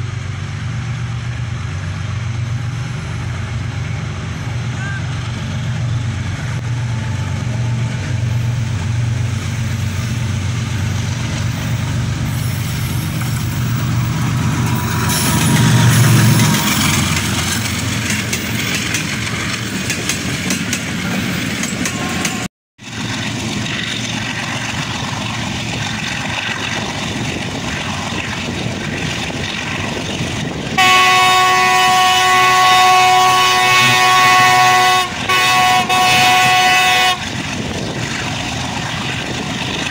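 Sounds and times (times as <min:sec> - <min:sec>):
diesel locomotive engine droning: 0:00.0 - 0:39.9
running train noise: 0:00.0 - 0:39.9
multi-tone locomotive horn: 0:15.0 - 0:17.5, 0:21.8 - 0:22.5, 0:30.8 - 0:37.4.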